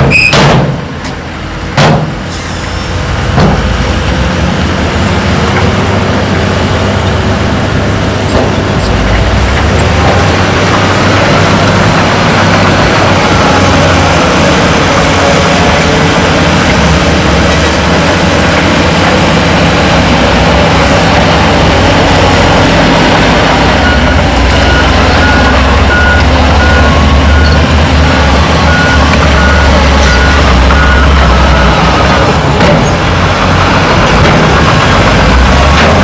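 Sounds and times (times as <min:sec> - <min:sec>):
heavy diesel machinery running: 0:00.0 - 0:36.0
reversing alarm beeping: 0:23.7 - 0:32.0.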